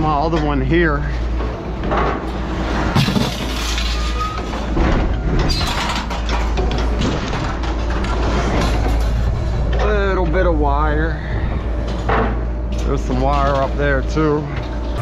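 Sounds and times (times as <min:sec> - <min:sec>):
heavy engine running: 0:00.0 - 0:15.0
junk knocking and clattering: 0:01.3 - 0:10.5, 0:11.7 - 0:13.7.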